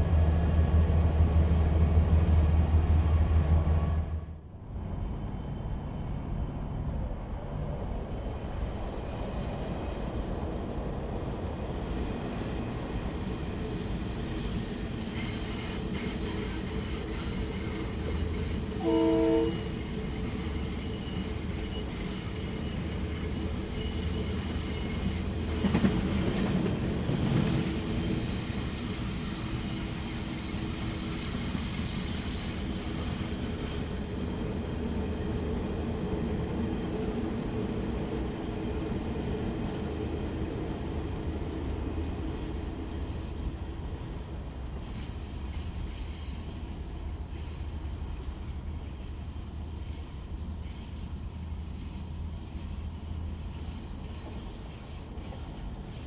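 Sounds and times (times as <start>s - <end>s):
train wagons rumbling on rails: 0.0s - 56.0s
locomotive horn blast: 18.8s - 19.6s.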